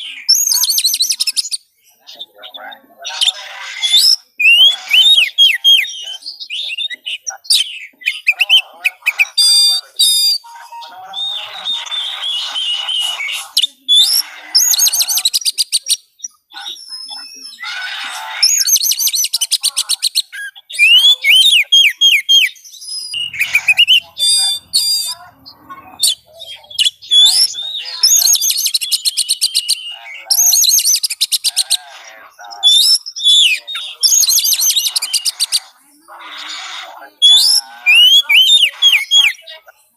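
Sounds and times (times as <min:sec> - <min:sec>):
magpie-robin singing: 0:00.0 - 0:39.9.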